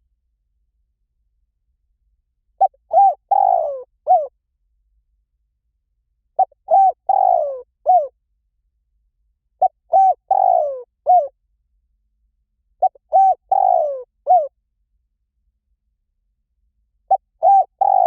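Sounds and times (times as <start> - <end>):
dove cooing: 2.6 - 4.3, 6.4 - 8.1, 9.6 - 11.3, 12.8 - 14.5, 17.1 - 18.0.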